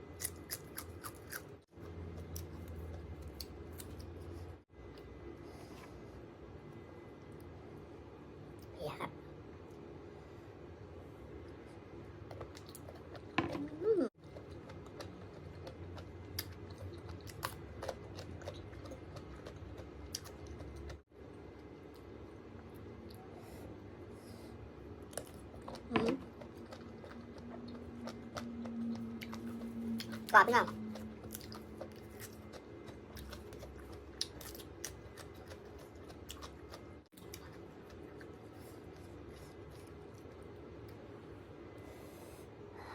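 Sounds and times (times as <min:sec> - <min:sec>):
person chewing: 0:00.0 - 0:06.0, 0:11.4 - 0:21.0, 0:24.9 - 0:41.0.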